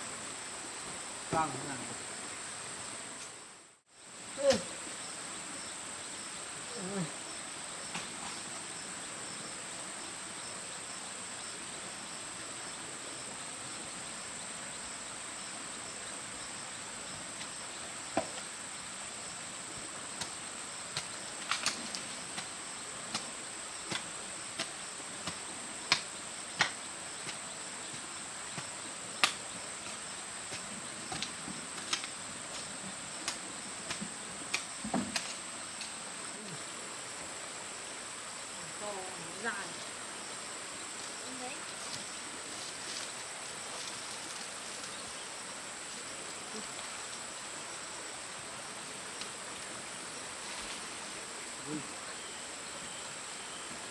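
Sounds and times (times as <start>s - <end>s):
insects droning: 0.0s - 53.9s.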